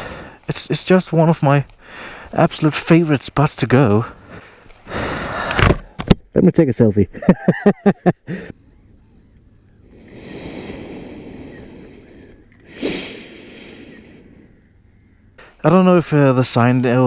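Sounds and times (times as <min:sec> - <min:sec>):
person breathing out heavily: 0:00.0 - 0:00.4, 0:01.8 - 0:02.4, 0:04.1 - 0:05.9, 0:09.8 - 0:14.6.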